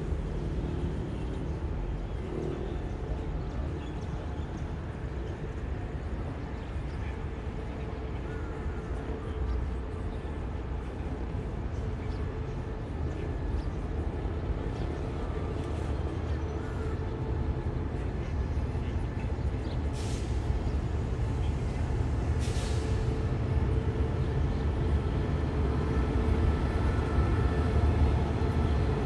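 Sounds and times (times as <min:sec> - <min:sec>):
train rumbling slowly: 0:00.0 - 0:29.0.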